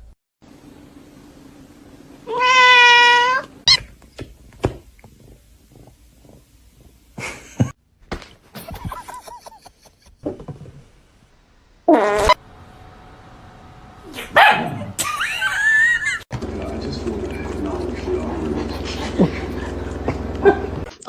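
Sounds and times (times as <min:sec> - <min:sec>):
cat meowing: 0:02.2 - 0:03.8.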